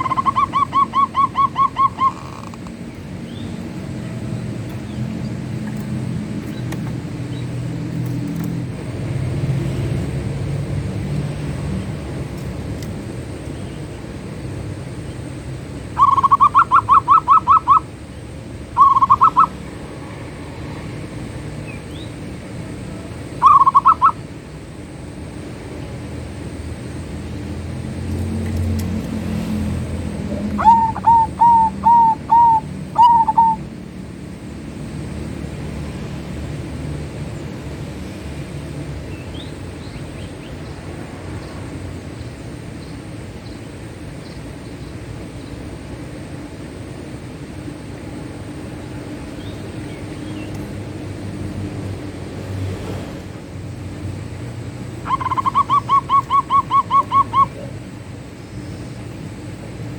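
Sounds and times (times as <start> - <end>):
dove cooing: 0.0 - 7.0, 16.0 - 17.9, 18.8 - 19.6, 23.0 - 24.3, 30.2 - 33.8, 54.8 - 58.0.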